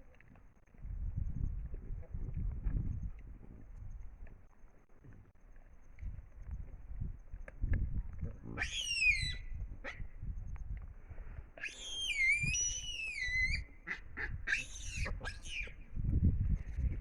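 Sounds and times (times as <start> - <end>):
high-pitched whistled animal calls: 8.6 - 9.6, 11.6 - 13.7, 14.5 - 15.8.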